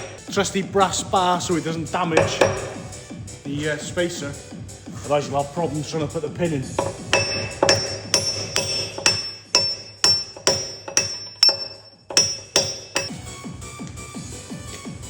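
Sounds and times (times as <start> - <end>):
hammer striking metal bar: 0.0 - 0.3, 2.2 - 3.0, 6.8 - 13.3.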